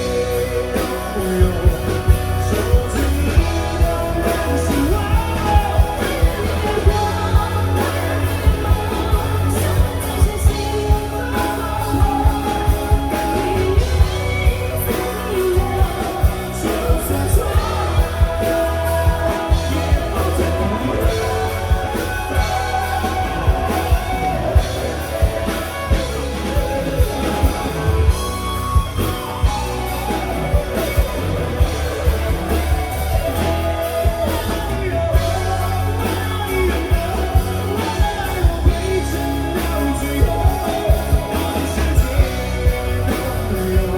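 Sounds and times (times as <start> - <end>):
drum kit beat: 0.0 - 43.9
person singing: 0.0 - 43.9
rock band playing ballad: 0.0 - 43.9.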